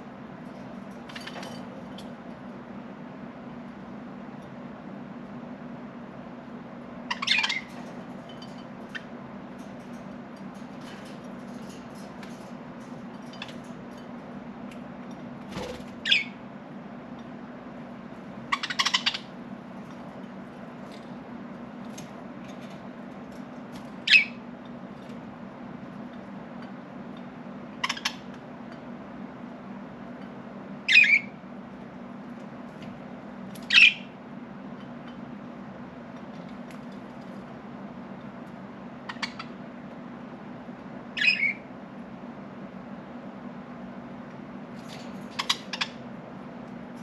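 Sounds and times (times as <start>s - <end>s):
steady low hum: 0.0s - 47.0s
budgerigar calls: 7.1s - 7.7s, 18.5s - 19.3s, 41.2s - 41.6s.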